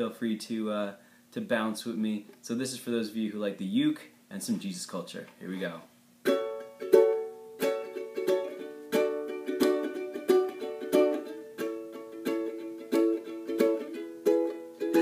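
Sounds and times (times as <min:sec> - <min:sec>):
ukulele strumming: 0:06.2 - 0:15.0.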